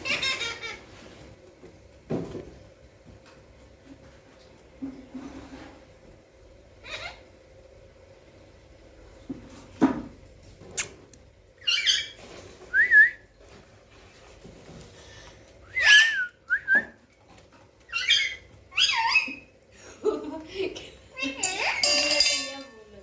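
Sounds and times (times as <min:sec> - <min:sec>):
parrot whistling and squawking: 0:11.6 - 0:12.2, 0:15.7 - 0:16.6, 0:17.9 - 0:19.5.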